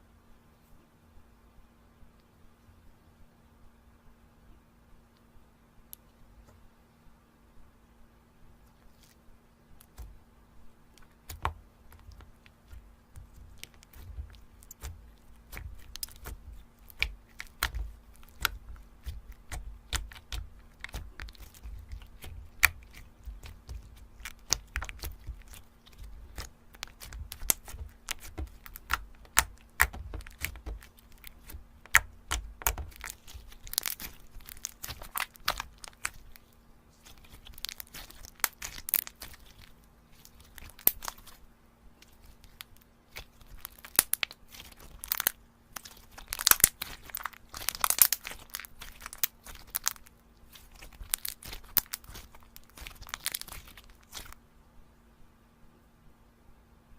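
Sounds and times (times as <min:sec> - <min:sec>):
slime crackling and popping: 0:10.9 - 0:41.4, 0:42.0 - 0:54.4.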